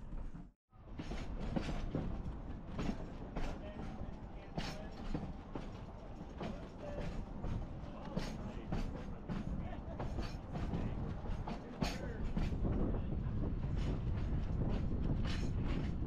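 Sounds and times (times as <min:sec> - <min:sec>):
train rumbling on track: 0:00.0 - 0:16.0.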